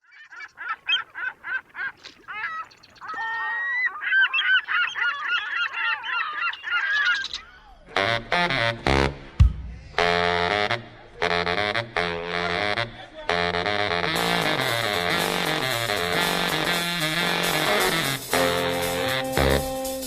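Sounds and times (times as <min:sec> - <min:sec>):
flock of birds honking: 0:00.0 - 0:07.4
music with brass: 0:07.9 - 0:20.0.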